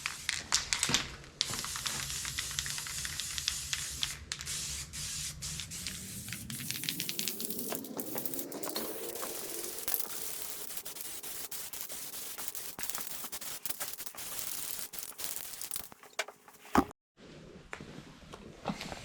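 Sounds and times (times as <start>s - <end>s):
arc welding crackle: 0.0s - 4.1s, 6.5s - 16.8s.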